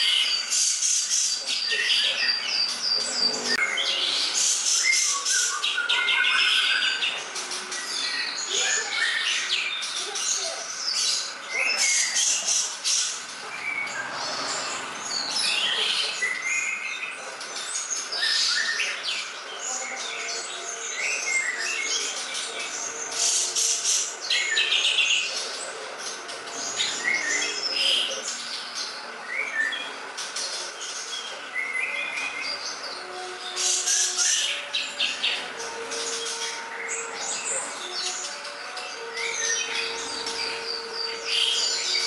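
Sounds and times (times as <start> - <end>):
songbird singing: 0.0 - 42.0.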